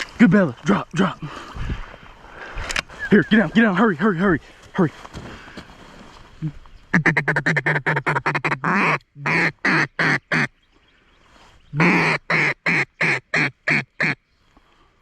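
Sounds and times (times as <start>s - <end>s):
duck call quacking: 6.9s - 10.5s, 11.8s - 14.2s.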